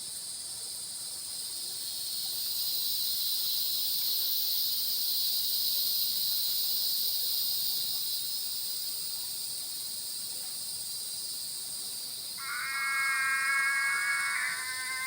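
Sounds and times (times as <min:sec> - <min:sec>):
frogs and insects trilling: 0:12.2 - 0:15.0.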